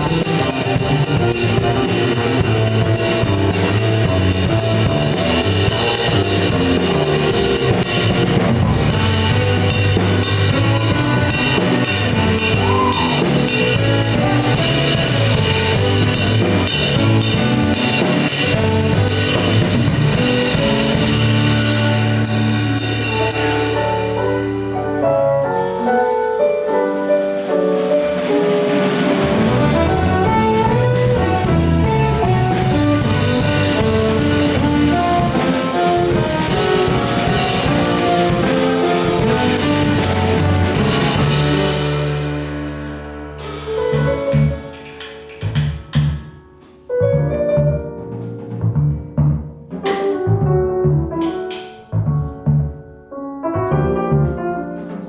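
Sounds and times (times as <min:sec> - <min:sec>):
bass: 0:00.0 - 0:55.0
drum kit: 0:00.0 - 0:55.0
piano: 0:00.0 - 0:55.0
guitar: 0:05.0 - 0:25.0
saxophone: 0:29.3 - 0:38.2.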